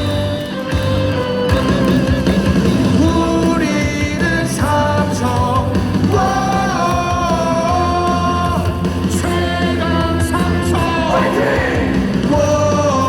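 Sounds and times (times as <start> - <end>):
rock music over loudspeakers: 0.0 - 13.0
crowd singing along: 2.8 - 13.0.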